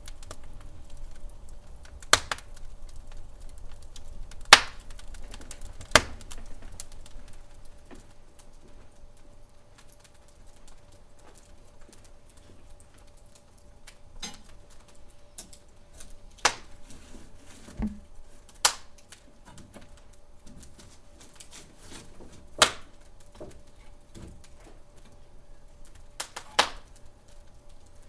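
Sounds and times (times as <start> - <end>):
wood fire crackling: 0.0 - 28.0
sharp pops: 4.5 - 4.9, 16.4 - 16.8, 17.8 - 19.2, 22.6 - 23.0
dull thump: 17.7 - 18.0.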